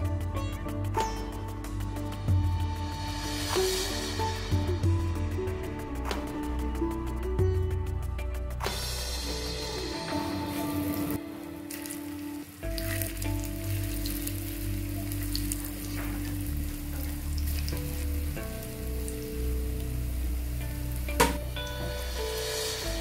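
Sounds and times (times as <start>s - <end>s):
background music: 0.0s - 23.0s
food frying in oil crackling: 10.5s - 22.3s.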